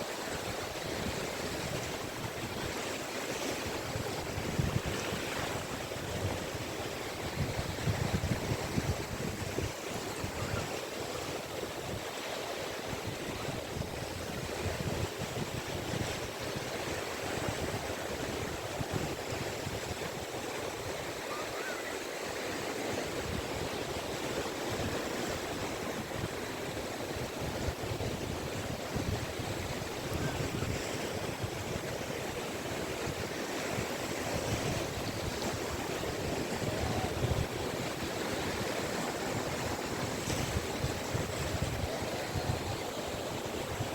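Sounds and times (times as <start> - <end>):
waves washing onto beach: 0.0 - 43.9.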